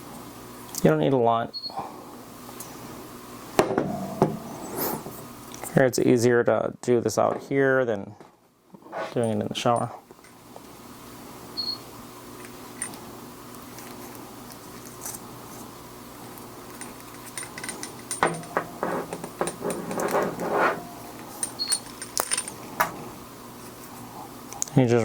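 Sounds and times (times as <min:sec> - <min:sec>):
rubbing and handling noise: 0:12.4 - 0:24.3
metal fittings clinking: 0:16.7 - 0:22.6.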